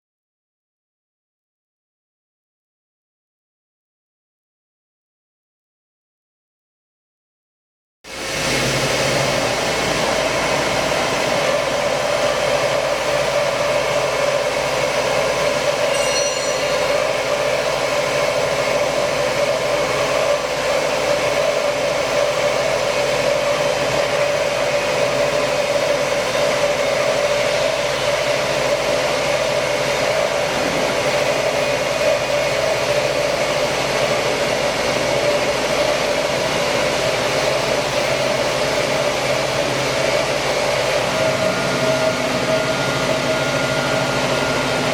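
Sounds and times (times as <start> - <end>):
band saw cutting steel: 12.1 - 20.4
faint high squeal: 15.8 - 17.4.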